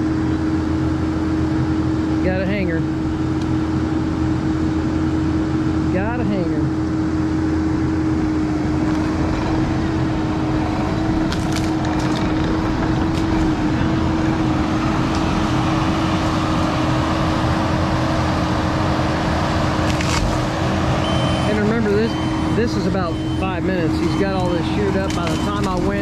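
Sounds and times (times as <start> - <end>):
diesel engine running at high throttle: 0.0 - 26.0
sharp cracks: 11.3 - 13.5, 19.8 - 20.4.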